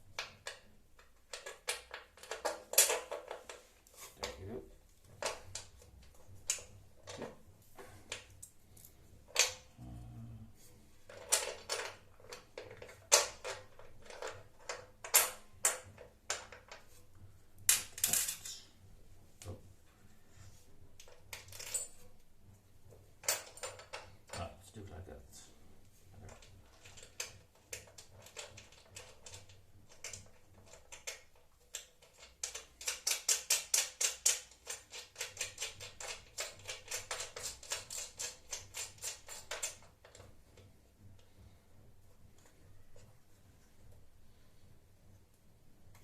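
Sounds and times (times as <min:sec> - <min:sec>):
small metal parts clinking: 0:17.7 - 0:18.7.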